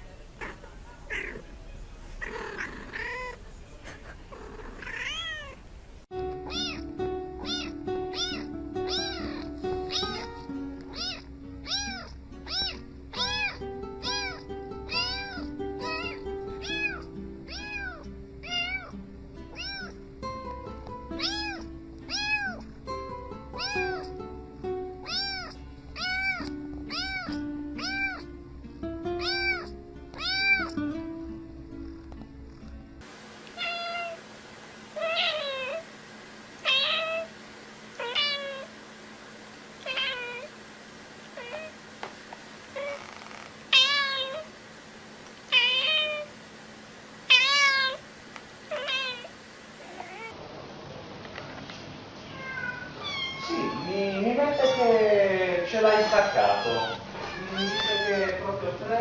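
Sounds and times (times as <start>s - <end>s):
cat meowing: 2.2s - 3.4s, 4.7s - 5.6s, 6.4s - 18.9s, 19.5s - 20.0s, 21.2s - 22.6s, 23.6s - 24.2s, 25.0s - 28.3s, 29.2s - 30.8s, 33.6s - 34.2s, 35.0s - 35.8s, 36.6s - 37.3s, 38.0s - 38.8s, 39.8s - 40.5s, 41.4s - 41.8s, 42.8s - 44.5s, 45.5s - 46.3s, 47.3s - 48.0s, 48.7s - 50.4s, 52.3s - 55.1s, 55.7s - 58.4s
background music: 6.1s - 33.0s.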